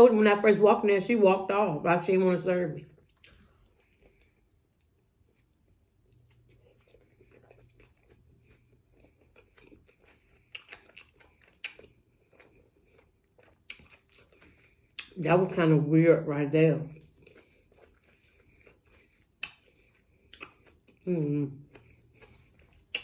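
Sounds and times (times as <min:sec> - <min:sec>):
close-up chewing: 0:02.9 - 0:15.2, 0:16.9 - 0:23.0
wet mouth clicks: 0:20.3 - 0:20.7, 0:22.8 - 0:23.0.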